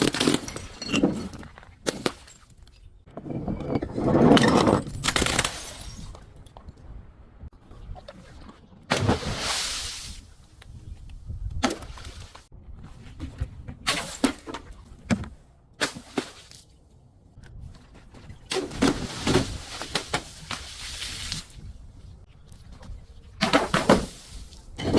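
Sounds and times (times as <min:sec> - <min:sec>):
objects being crushed: 0:00.0 - 0:06.4.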